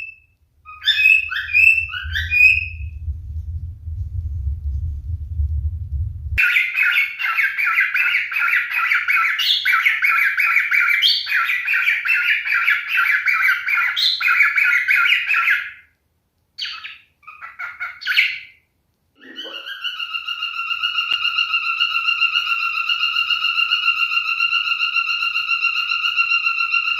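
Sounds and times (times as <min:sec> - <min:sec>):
short bird calls: 0:00.0 - 0:02.8, 0:19.2 - 0:26.9
upward-sliding whistle: 0:00.8 - 0:03.0
rising tone: 0:01.2 - 0:06.4
cockatiel chattering warble: 0:19.2 - 0:26.9.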